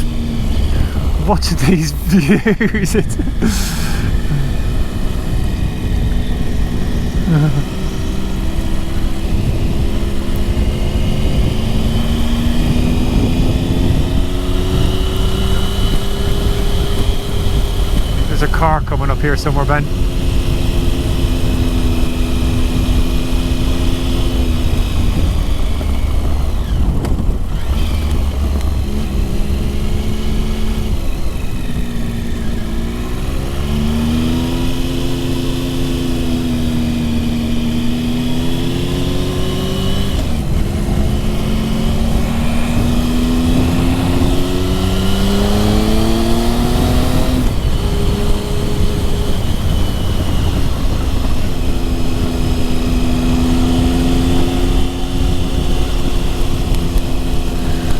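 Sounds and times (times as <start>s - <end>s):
motorcycle engine revving: 0.0s - 1.4s, 2.3s - 57.9s
low wind rumble: 0.0s - 1.5s, 2.4s - 18.9s, 19.8s - 57.9s.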